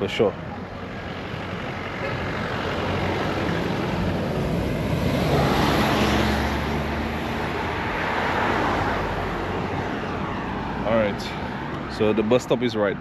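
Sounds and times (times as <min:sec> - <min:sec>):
vehicle driving past: 0:01.2 - 0:11.4.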